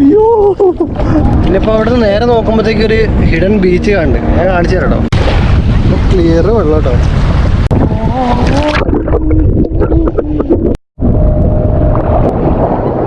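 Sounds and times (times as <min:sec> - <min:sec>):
strong wind buffeting microphone: 0:00.0 - 0:13.0
person's wavering voice: 0:07.8 - 0:10.6.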